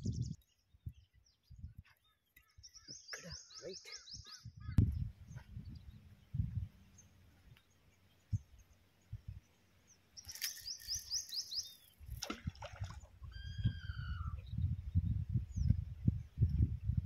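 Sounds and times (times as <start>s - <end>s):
birds chirping: 0.0s - 17.0s
faint low thumps and rumble: 4.5s - 9.5s, 13.6s - 17.0s.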